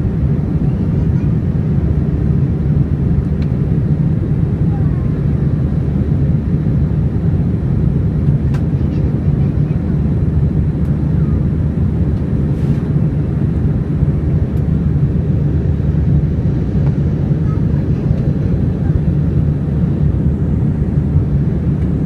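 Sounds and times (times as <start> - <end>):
jet engine roar in cabin: 0.0 - 22.0.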